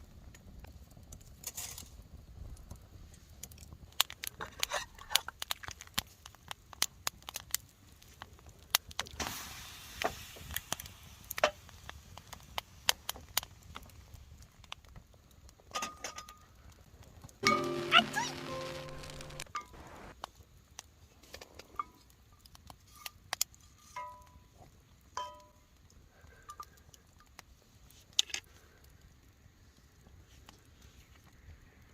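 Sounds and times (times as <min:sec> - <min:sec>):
campfire crackling: 0:00.0 - 0:31.9
sharp pops and snaps: 0:02.6 - 0:15.7, 0:17.1 - 0:21.7.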